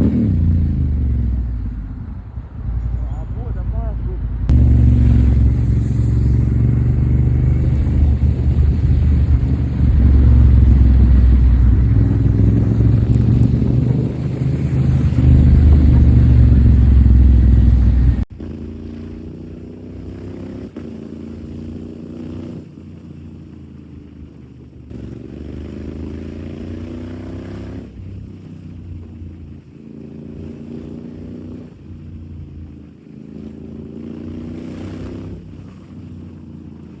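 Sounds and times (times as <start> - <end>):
low wind rumble: 0.0 - 18.4
motorcycle engine accelerating: 0.0 - 37.0.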